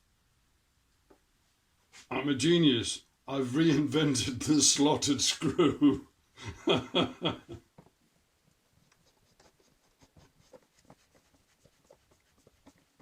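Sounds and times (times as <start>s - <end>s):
faint irregular scratching: 1.4s - 2.2s, 8.5s - 13.0s
man speaking: 2.1s - 6.1s.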